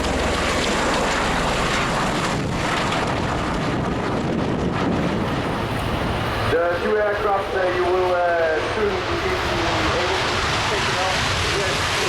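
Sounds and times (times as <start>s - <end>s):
tiltrotor aircraft roar: 0.0s - 12.0s
wind noise on microphone: 1.0s - 6.5s.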